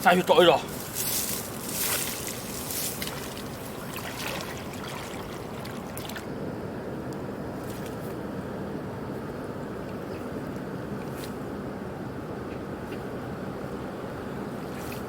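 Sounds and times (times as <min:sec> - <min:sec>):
water sloshing from wading: 0:00.7 - 0:06.3.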